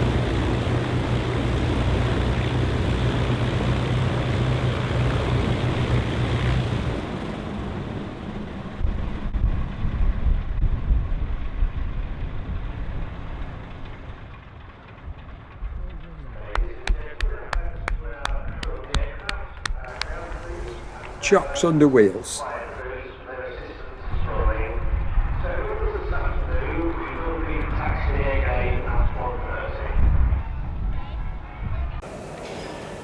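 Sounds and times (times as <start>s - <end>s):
aircraft engines shutting down: 0.0s - 10.5s, 18.3s - 22.8s, 25.4s - 33.0s.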